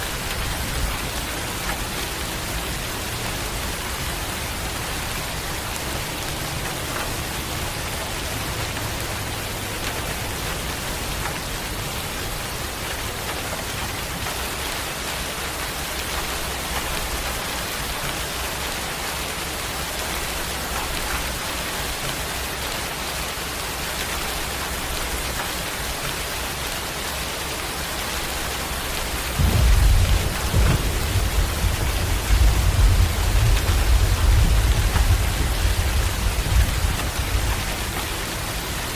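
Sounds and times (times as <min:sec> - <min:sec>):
heavy rain falling: 0:00.0 - 0:38.9
deep thunder rumble: 0:29.2 - 0:38.9.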